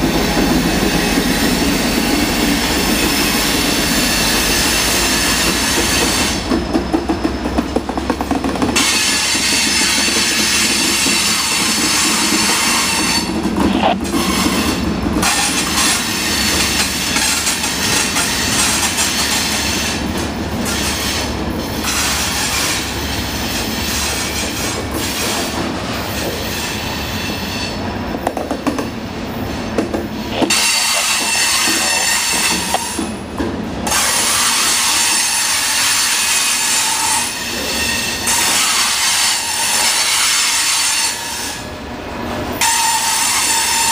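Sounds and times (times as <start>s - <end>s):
train wheels on rails: 0.0s - 43.9s
high-pitched wheel squeal: 8.8s - 16.9s, 30.2s - 33.0s.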